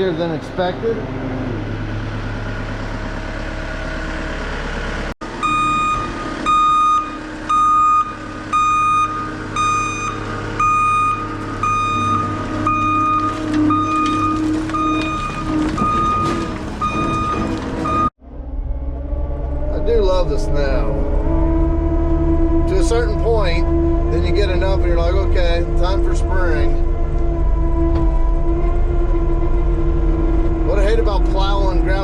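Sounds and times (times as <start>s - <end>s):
diesel engine running: 0.0s - 32.0s
backup alarm beeping: 5.4s - 18.1s.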